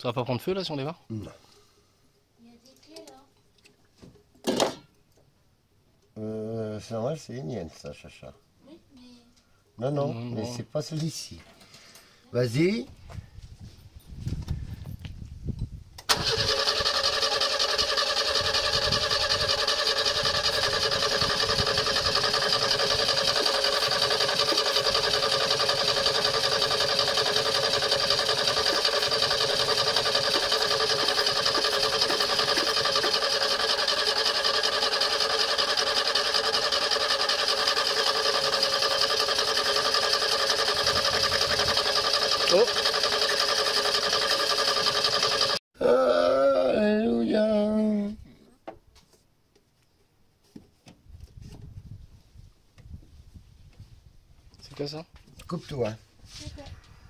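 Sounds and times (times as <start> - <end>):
car engine starting and running: 16.0 - 45.6.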